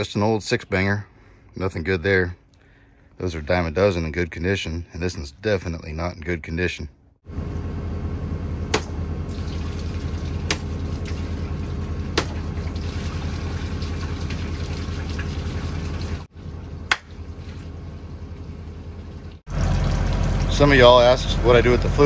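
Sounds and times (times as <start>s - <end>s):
engine running: 7.2s - 22.0s
oil running into a container: 9.3s - 16.3s.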